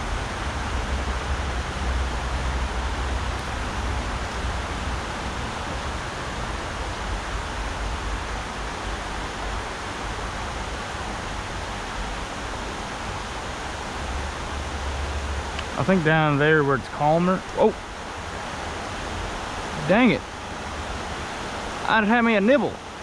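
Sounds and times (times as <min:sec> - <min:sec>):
river water rushing over rocks: 0:00.0 - 0:23.0.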